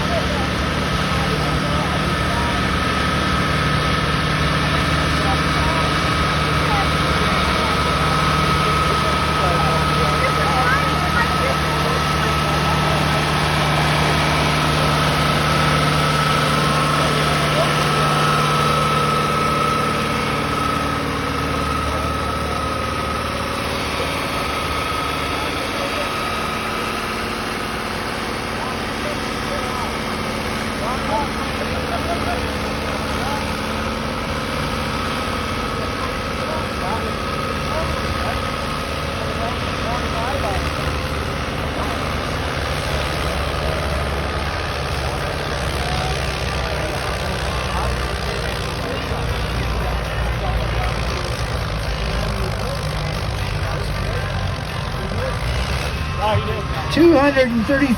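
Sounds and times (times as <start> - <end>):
tractor engine running: 0.0 - 57.9
thin steady whine: 48.8 - 57.9.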